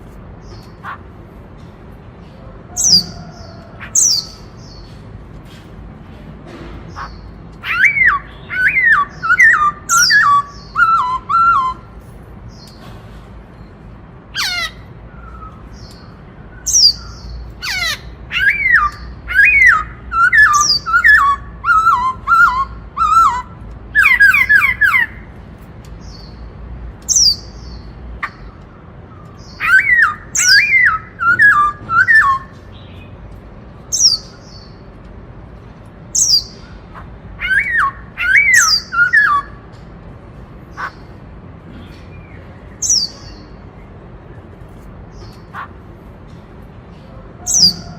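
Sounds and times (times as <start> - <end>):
bird singing whistled notes: 7.6 - 11.9, 37.4 - 39.6.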